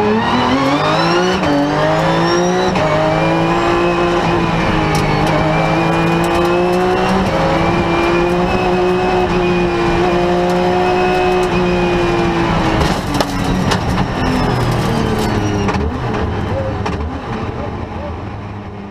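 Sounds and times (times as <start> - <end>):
rally car engine revving: 0.0 - 18.9
sharp clicks and knocks: 4.9 - 9.3, 10.3 - 11.6, 12.8 - 17.1.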